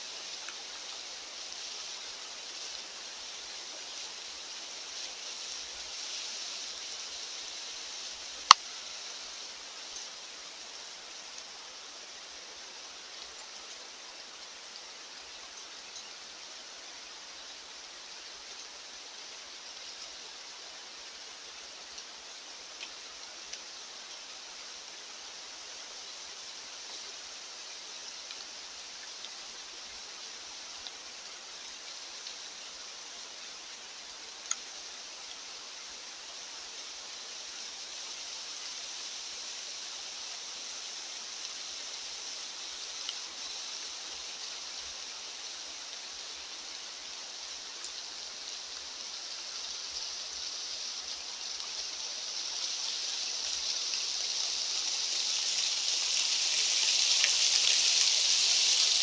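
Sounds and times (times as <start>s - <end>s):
faint ticks: 0.0s - 59.0s
wind hissing: 36.5s - 59.0s.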